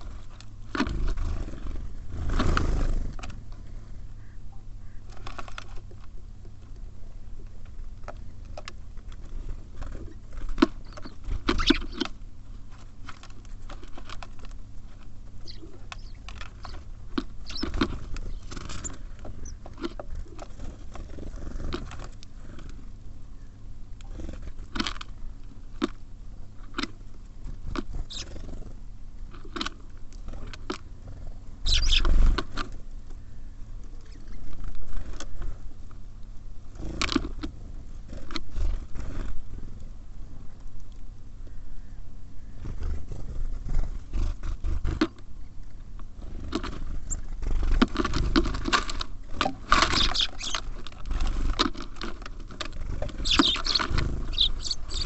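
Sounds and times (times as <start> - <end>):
beaks pecking on feeder: 7.5 - 21.1, 27.7 - 28.4, 31.6 - 32.8, 46.5 - 55.0
scratchy rustling: 49.6 - 55.0.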